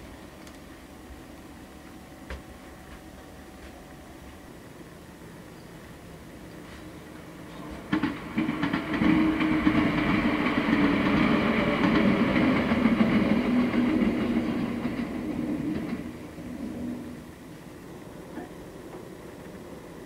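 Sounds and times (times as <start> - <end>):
electric train passing: 0.0 - 20.0
wheels clicking over rail joints: 7.4 - 16.4.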